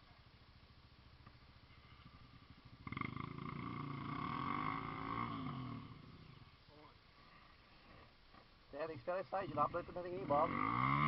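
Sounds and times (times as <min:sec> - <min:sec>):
off-road vehicle engine revving: 0:01.7 - 0:06.6, 0:09.5 - 0:11.0.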